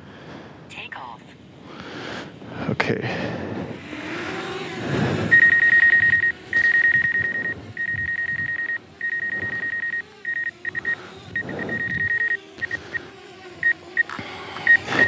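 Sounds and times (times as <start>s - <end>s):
faint wavering hum: 0.0s - 15.0s
electronic warning beeps: 5.3s - 15.0s.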